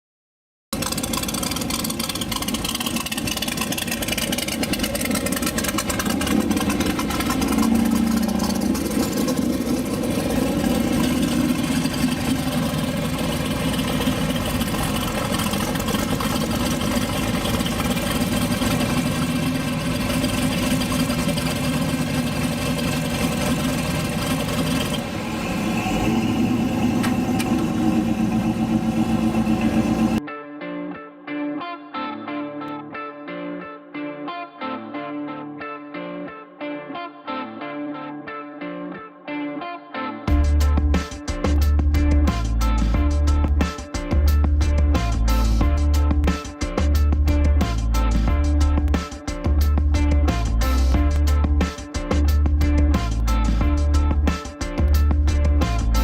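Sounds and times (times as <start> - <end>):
car engine idling: 0.8 - 30.2.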